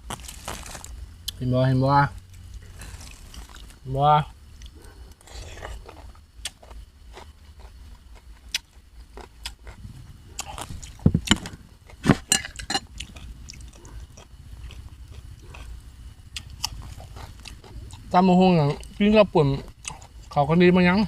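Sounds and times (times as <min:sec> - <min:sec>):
crisp crunches: 0:00.0 - 0:01.0, 0:02.6 - 0:03.8
biting and chewing: 0:00.0 - 0:01.4, 0:02.2 - 0:03.8, 0:04.6 - 0:20.4.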